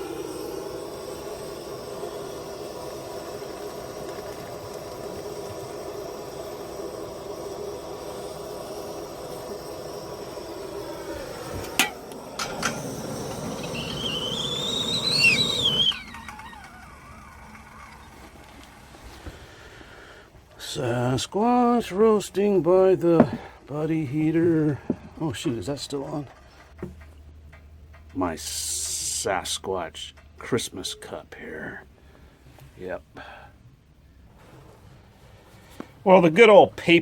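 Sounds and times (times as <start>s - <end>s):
hot water pouring: 0.0s - 20.7s
gas burner hissing: 0.0s - 37.0s
kettle clicks: 11.0s - 19.4s.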